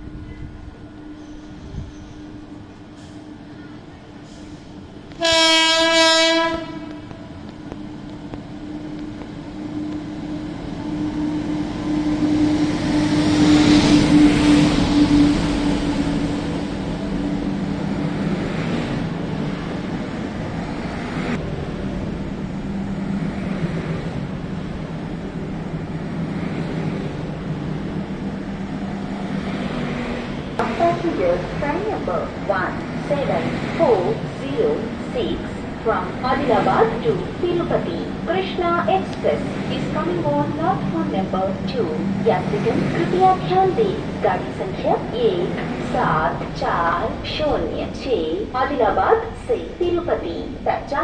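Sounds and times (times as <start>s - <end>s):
train passing: 0.0s - 51.0s
train horn blast: 5.1s - 7.4s.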